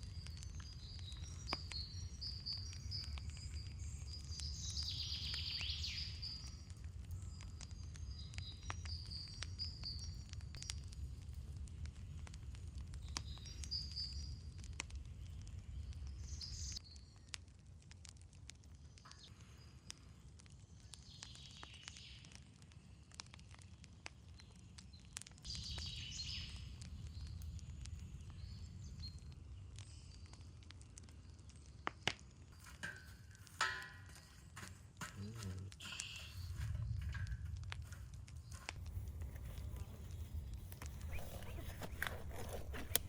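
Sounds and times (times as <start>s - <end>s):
campfire crackling: 0.0s - 43.0s
birds chirping: 35.3s - 37.1s, 38.4s - 43.0s.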